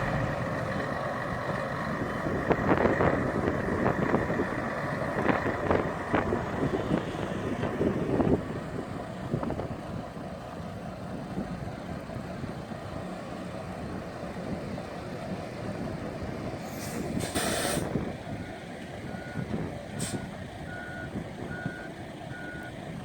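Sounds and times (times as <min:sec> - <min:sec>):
diesel truck engine running: 0:00.0 - 0:23.0
air brakes hissing: 0:16.6 - 0:18.0, 0:20.0 - 0:20.3
reversing beeper: 0:19.1 - 0:22.8.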